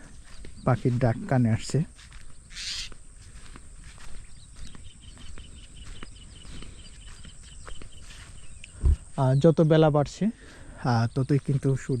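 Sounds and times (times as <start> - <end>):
bird chirping rapidly: 0.0 - 3.0, 4.1 - 10.0
birds calling: 0.0 - 12.0.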